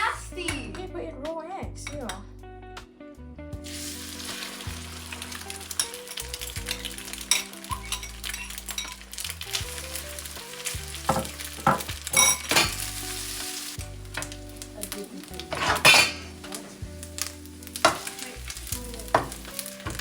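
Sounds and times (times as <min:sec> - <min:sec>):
eggs sizzling in a pan: 0:03.6 - 0:20.0
utensil scraping a pan: 0:15.4 - 0:16.8.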